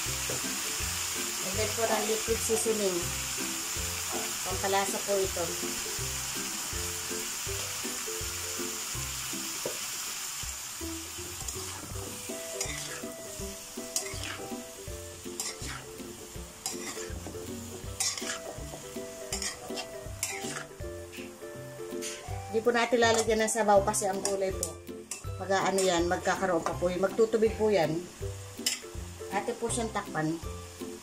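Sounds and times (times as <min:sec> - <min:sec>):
vegetables sizzling in a frying pan: 0:00.0 - 0:31.0
spoon scraping against pan: 0:12.5 - 0:13.2, 0:13.9 - 0:14.5, 0:15.3 - 0:15.9, 0:16.6 - 0:17.3, 0:18.0 - 0:22.3, 0:23.1 - 0:23.4, 0:24.2 - 0:26.0, 0:28.6 - 0:28.9
metal spoon stirring: 0:15.3 - 0:15.8, 0:16.6 - 0:17.2, 0:18.0 - 0:18.6, 0:19.3 - 0:20.8, 0:28.6 - 0:28.9.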